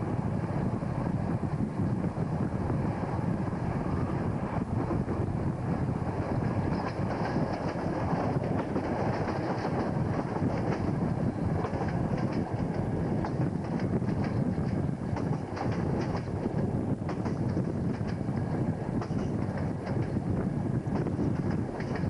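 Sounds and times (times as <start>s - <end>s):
train coaches rumbling: 0.0s - 22.0s
wheels clicking over rail joints: 6.6s - 22.0s.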